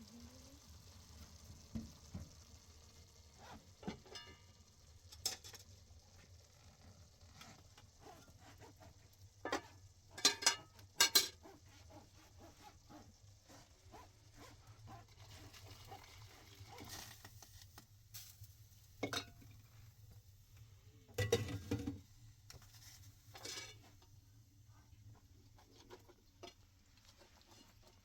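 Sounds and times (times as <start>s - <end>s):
food frying in a pan: 0.0s - 28.0s
utensil scraping a pan: 7.2s - 17.5s, 21.2s - 24.0s, 25.5s - 28.0s.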